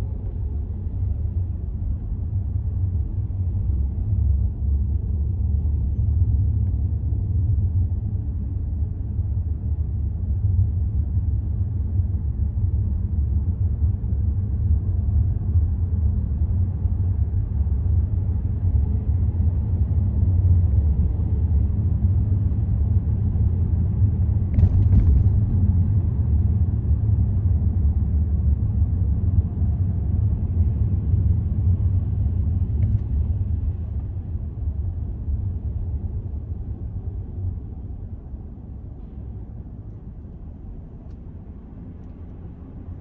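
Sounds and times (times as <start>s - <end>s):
car driving rumble: 24.2s - 26.4s.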